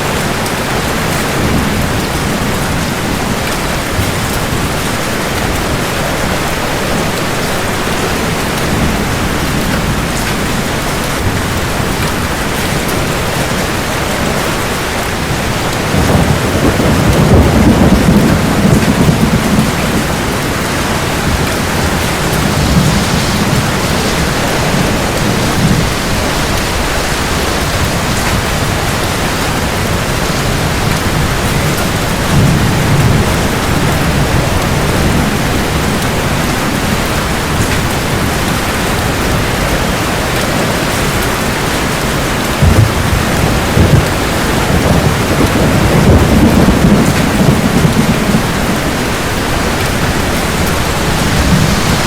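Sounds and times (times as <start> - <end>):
heavy rain falling: 0.0 - 52.0
thunder rumbling: 0.0 - 52.0
sharp thunder cracks: 15.7 - 37.0, 42.6 - 52.0.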